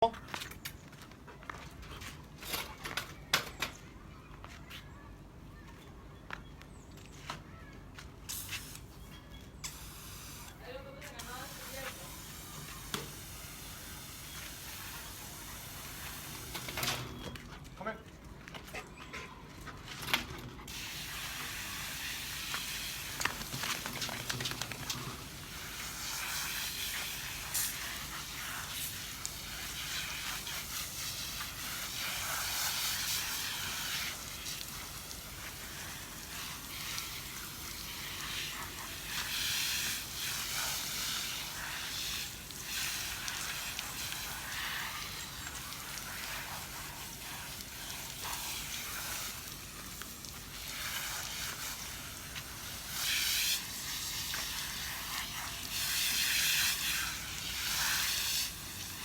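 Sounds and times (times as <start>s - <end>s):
water spraying: 8.3s - 9.0s, 9.6s - 17.2s, 20.6s - 59.0s.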